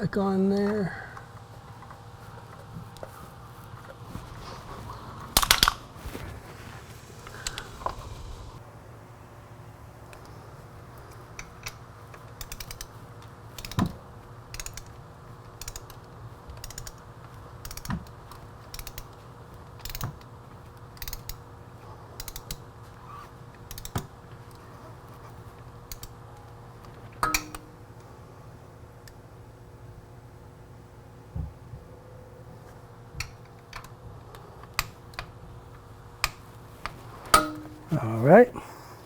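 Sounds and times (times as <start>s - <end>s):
ratchet wrench clicking: 12.4s - 13.0s, 13.6s - 13.8s, 14.5s - 15.0s, 15.6s - 16.0s, 16.6s - 17.0s, 17.6s - 17.9s, 18.7s - 19.1s, 19.8s - 20.1s, 21.0s - 21.4s, 22.2s - 22.6s, 23.7s - 24.0s.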